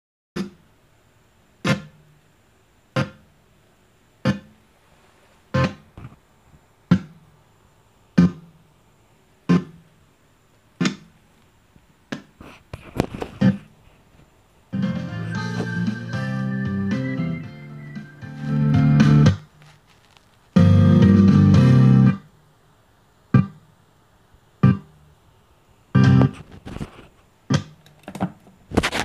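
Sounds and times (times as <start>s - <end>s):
music in short bursts from speaker: 14.8s - 19.2s.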